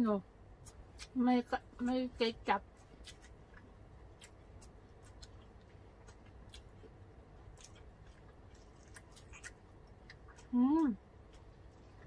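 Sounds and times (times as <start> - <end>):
person chewing food: 2.6 - 12.0.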